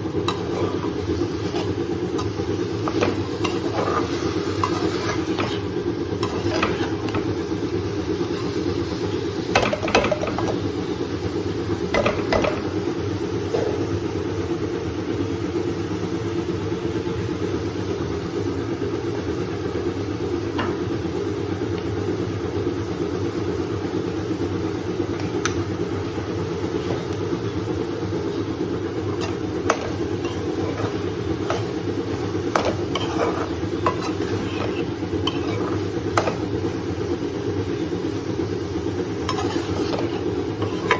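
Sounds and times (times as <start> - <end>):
low kitchen hum: 0.0 - 40.9
utensil clinking against pan: 29.1 - 36.6, 39.3 - 40.9.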